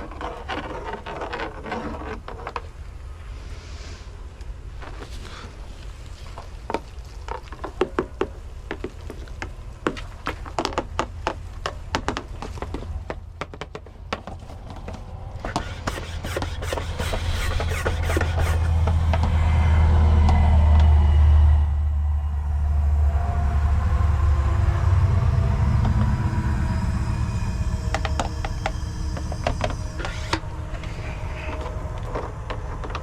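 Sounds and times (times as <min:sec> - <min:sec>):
low rumble: 0:16.9 - 0:33.0.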